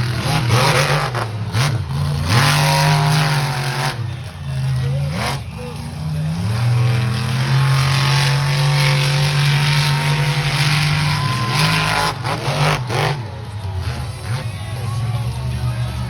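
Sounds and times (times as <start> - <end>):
monster truck engine revving high: 0.0 - 14.5.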